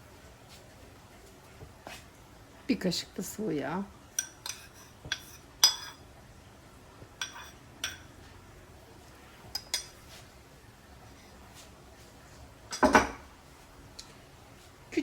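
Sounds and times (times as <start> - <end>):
utensils clinking on cookware: 4.1 - 6.1, 7.2 - 8.2, 9.4 - 10.1, 12.7 - 13.3.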